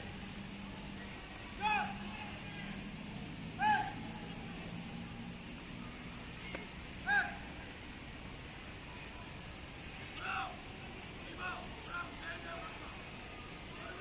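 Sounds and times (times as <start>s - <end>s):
steady rain falling: 0.0s - 14.0s
short high-pitched shout: 3.6s - 4.0s.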